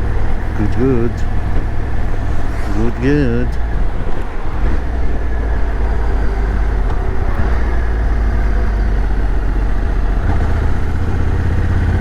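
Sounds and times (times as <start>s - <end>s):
motorcycle engine and road rumble: 0.0s - 12.0s
wind rushing over microphone: 0.0s - 12.0s.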